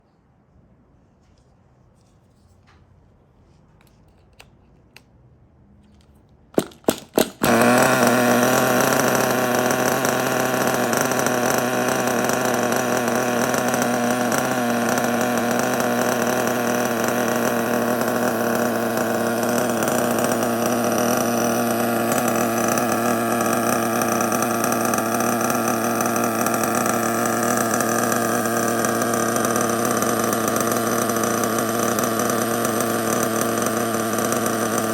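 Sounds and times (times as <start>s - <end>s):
small engine buzzing: 5.9s - 34.9s
engine cranking bursts: 6.0s - 34.9s.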